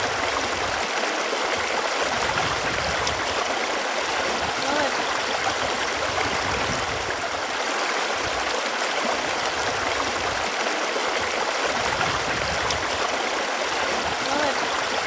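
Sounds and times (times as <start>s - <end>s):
running water flowing: 0.0s - 15.0s.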